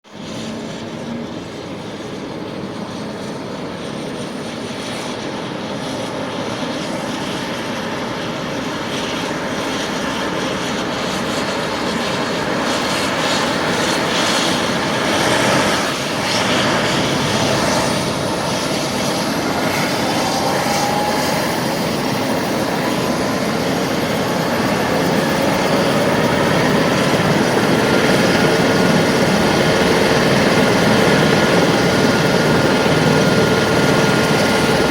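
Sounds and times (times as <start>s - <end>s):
helicopter turbine and rotor: 0.0s - 34.9s
thin whine rising in pitch: 16.2s - 27.2s.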